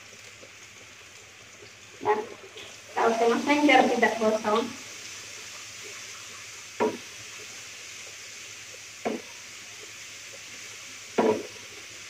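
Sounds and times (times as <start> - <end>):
spice paste sizzling in a pan: 2.7 - 12.0
spatula knocking against pan: 9.0 - 9.3.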